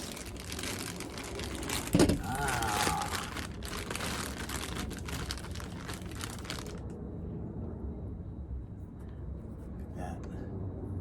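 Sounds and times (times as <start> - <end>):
plastic packaging crinkling: 0.0 - 6.9
low background rumble: 0.0 - 11.0.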